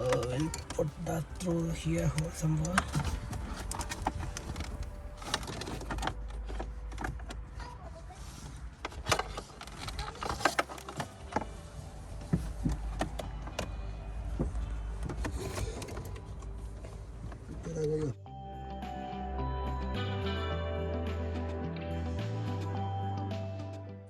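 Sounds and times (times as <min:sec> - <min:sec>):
plastic parts clicking and rattling: 0:00.0 - 0:17.6.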